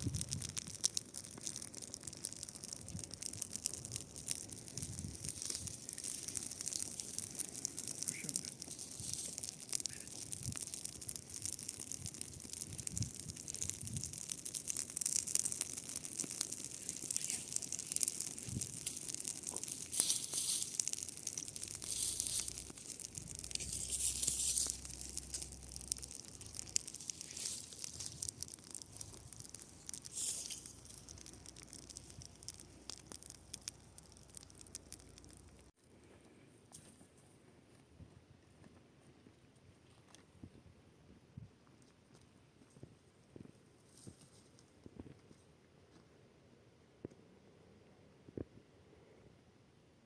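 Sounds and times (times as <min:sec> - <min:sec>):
dry grass crackling: 0:00.0 - 0:38.7.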